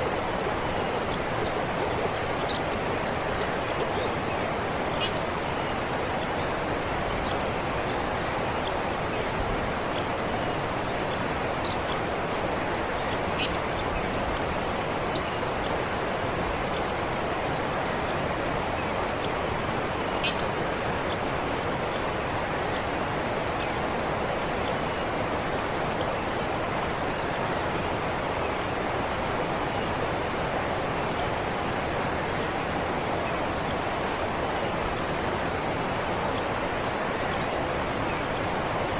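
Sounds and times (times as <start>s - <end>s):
small birds chirping: 0.0s - 16.9s, 17.5s - 26.3s
forest stream flowing: 0.0s - 38.9s.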